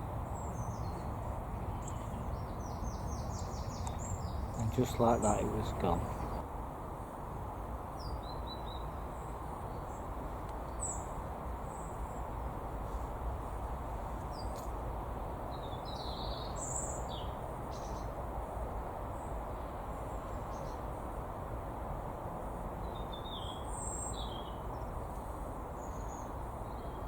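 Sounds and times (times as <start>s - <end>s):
low background rumble: 0.0s - 6.4s.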